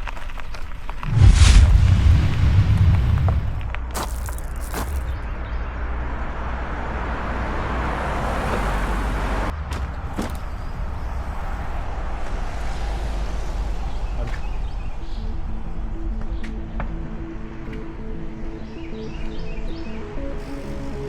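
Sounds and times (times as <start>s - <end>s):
wind buffeting microphone: 1.0s - 5.2s.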